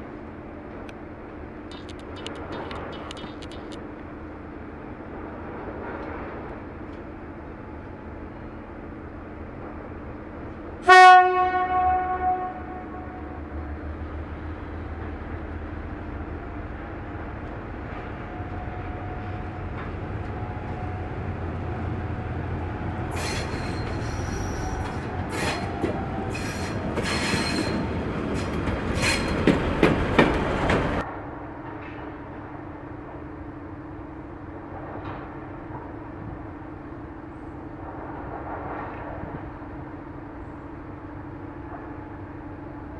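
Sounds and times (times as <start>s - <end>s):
train rumble: 0.0s - 42.9s
train wheels clattering and squealing: 1.7s - 3.8s, 17.4s - 31.0s
train horn blast: 10.8s - 13.6s.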